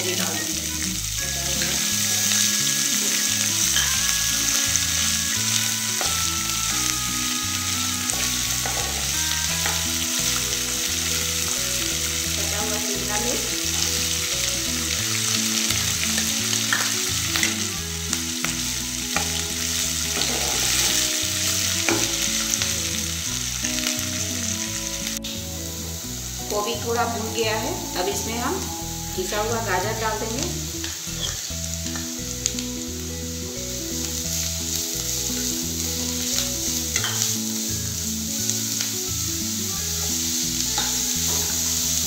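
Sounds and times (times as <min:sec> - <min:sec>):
light background music: 0:00.0 - 0:42.0
vegetables sizzling in oil: 0:00.0 - 0:42.0
metal spatula stirring: 0:37.0 - 0:37.3, 0:40.7 - 0:41.8.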